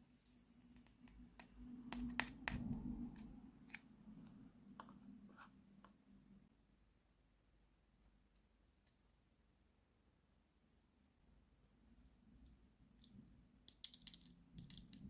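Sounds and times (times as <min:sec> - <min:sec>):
plastic toy pieces clicking: 0:13.7 - 0:15.0.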